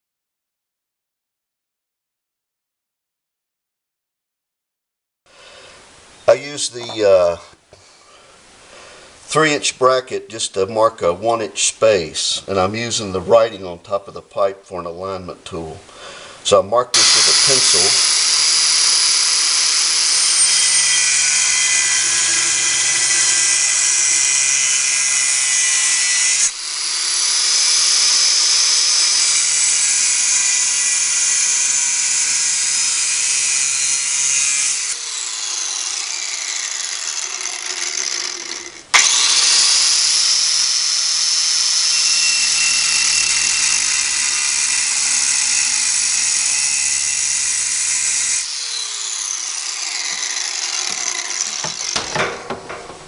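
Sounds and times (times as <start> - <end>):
power cutting tool cutting steel: 17.0 - 53.0.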